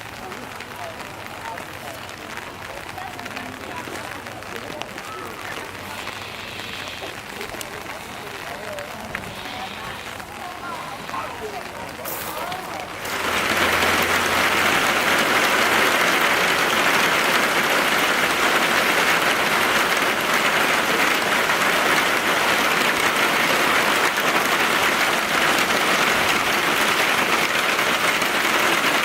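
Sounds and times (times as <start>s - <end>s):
heavy rain on umbrella: 0.0s - 29.0s.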